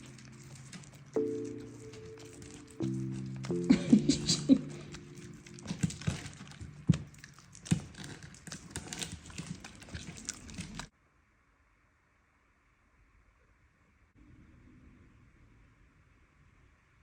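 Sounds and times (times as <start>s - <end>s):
background music chords: 0.0s - 6.4s
pets moving and playing: 0.0s - 10.9s.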